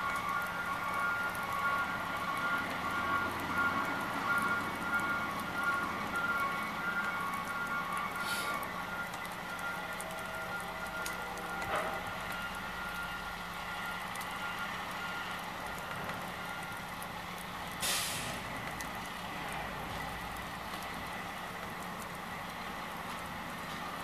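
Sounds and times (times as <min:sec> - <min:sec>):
air brake hiss: 0:08.2 - 0:08.6, 0:17.8 - 0:18.4.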